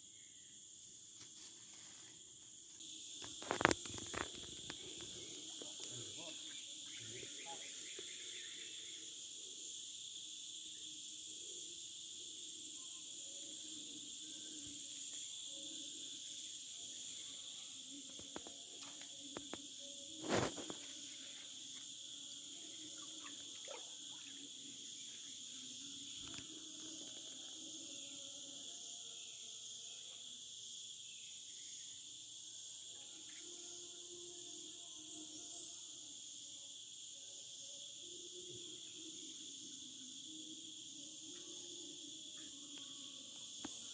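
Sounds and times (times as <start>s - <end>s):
insect chorus buzzing: 0.0s - 43.9s.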